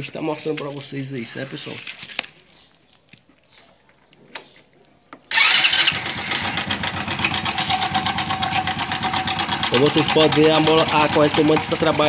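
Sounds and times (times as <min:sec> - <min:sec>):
motorcycle engine running: 0:05.3 - 0:12.0.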